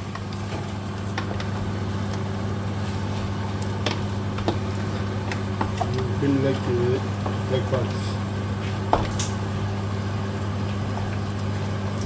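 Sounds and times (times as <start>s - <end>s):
meat cooking in a pot: 0.0s - 12.0s
steady low hum: 0.0s - 12.0s.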